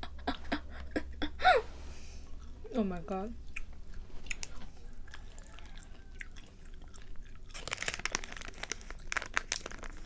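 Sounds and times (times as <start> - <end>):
wet mouth clicks: 3.5 - 4.6
chewing tough snack: 3.5 - 10.0.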